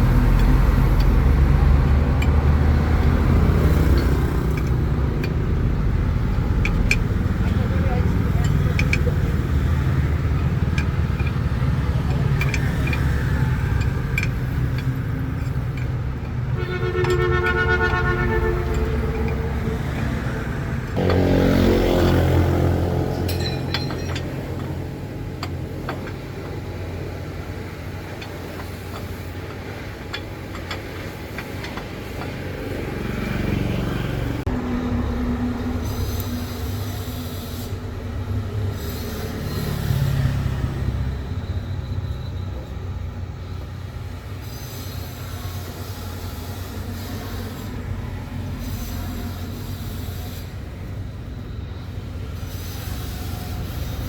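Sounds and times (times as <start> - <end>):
vehicle engine rumble: 0.0 - 54.0
horn-like tone: 16.5 - 20.2.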